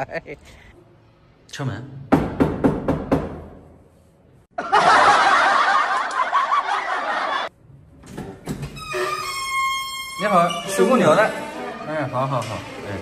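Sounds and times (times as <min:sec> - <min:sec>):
knocks on a door: 0:02.1 - 0:03.5.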